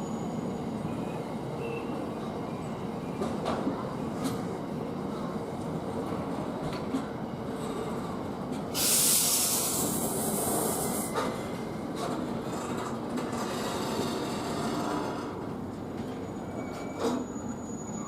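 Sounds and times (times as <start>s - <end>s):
air brakes hissing: 8.7s - 11.4s.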